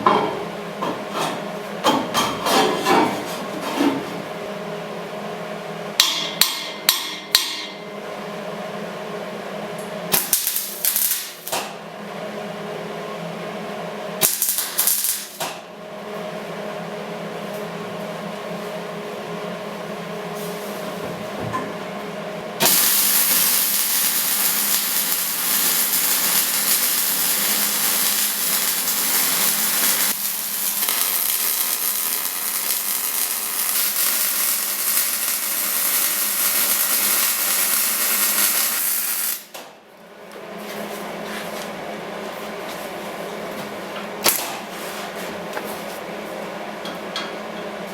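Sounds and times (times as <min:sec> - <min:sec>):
welder arc crackling hiss: 0:10.1 - 0:11.7, 0:14.2 - 0:15.5, 0:22.6 - 0:39.6.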